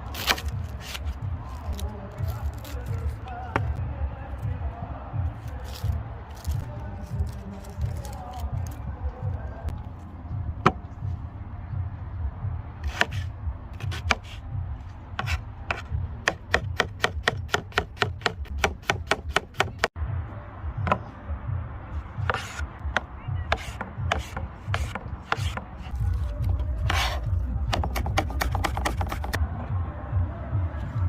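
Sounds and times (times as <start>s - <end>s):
knife chopping on wooden board: 12.8s - 14.4s, 15.2s - 20.0s, 22.2s - 29.4s.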